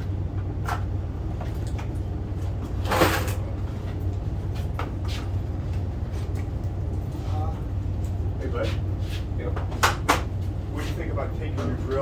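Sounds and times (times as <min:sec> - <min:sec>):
clunk with a rattle: 0:02.8 - 0:03.5.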